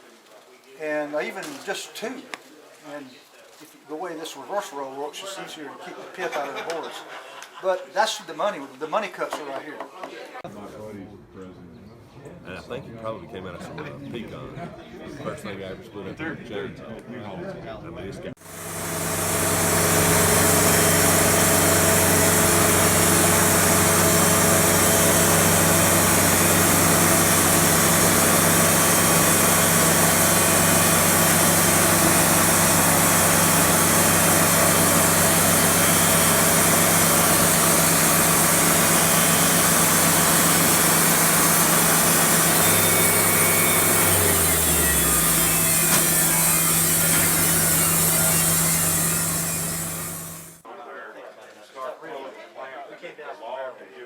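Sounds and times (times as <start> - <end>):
band saw blade cutting log: 18.5 - 50.6
engine humming: 18.5 - 50.6.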